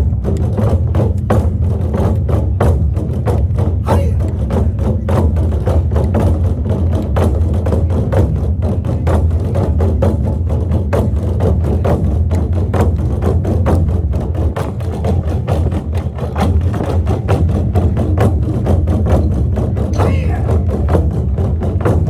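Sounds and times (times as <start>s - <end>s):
drum ensemble playing: 0.5s - 5.7s, 16.1s - 22.0s.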